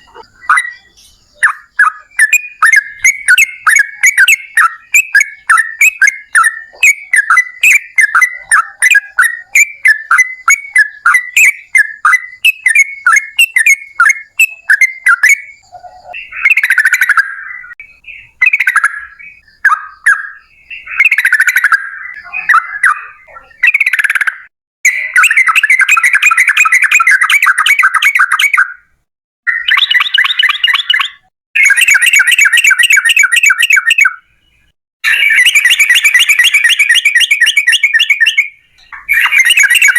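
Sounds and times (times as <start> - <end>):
bird bubbling phrases: 0.0 - 2.4, 20.8 - 25.4
bird rolling trills: 0.0 - 10.2
bird chirping: 0.0 - 39.9.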